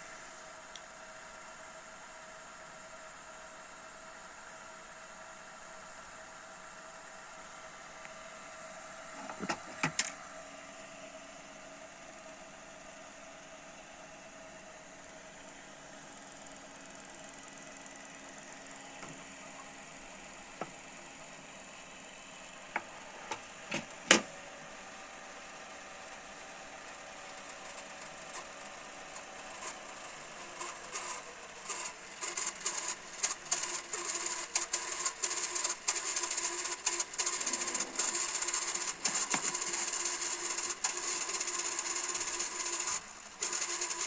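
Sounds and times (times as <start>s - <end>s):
video recorder mechanism clicks: 9.2s - 10.2s, 22.8s - 24.3s.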